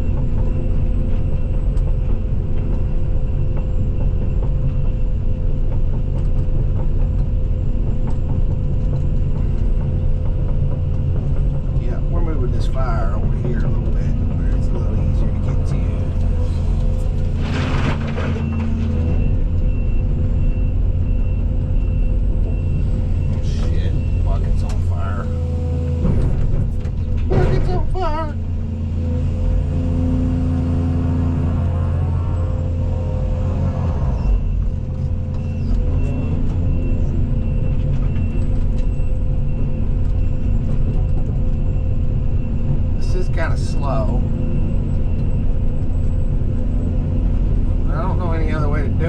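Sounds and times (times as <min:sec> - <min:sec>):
excavator diesel engine running: 0:00.0 - 0:49.0.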